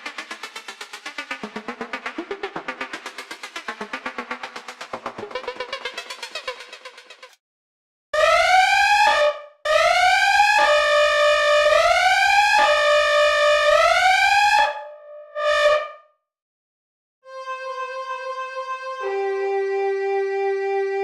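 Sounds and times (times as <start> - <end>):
buzzy synthesizer notes sliding up: 0.0 - 7.4.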